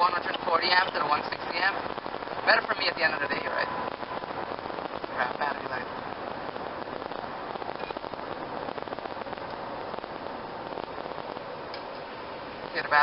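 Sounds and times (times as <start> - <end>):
road and tyre noise: 0.0 - 13.0.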